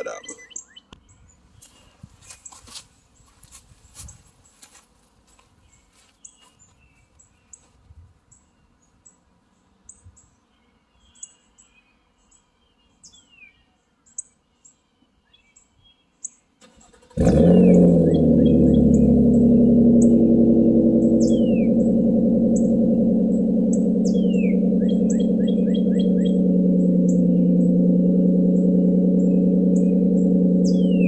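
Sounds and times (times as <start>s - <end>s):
birds chirping: 0.0s - 4.6s, 5.2s - 31.0s
car engine starting and running: 16.6s - 31.0s.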